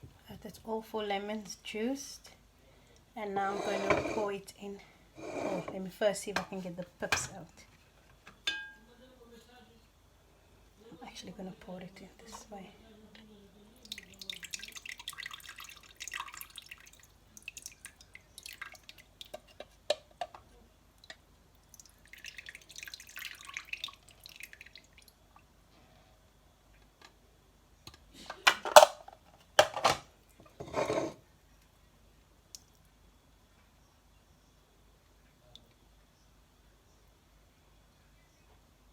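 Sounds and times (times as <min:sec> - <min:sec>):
short knocks or scrapes: 0:03.4 - 0:04.3, 0:30.6 - 0:31.2
juice trickling into a bowl: 0:13.8 - 0:19.9, 0:21.0 - 0:25.5.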